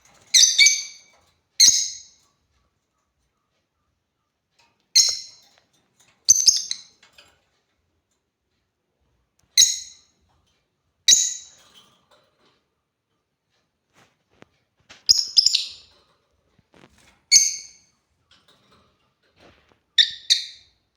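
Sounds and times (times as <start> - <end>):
lovebird shrill calls: 15.1 - 15.8.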